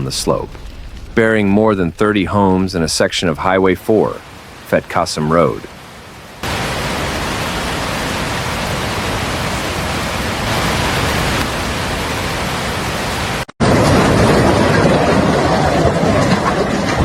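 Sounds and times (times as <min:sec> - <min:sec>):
steady rushing noise: 0:00.0 - 0:05.7.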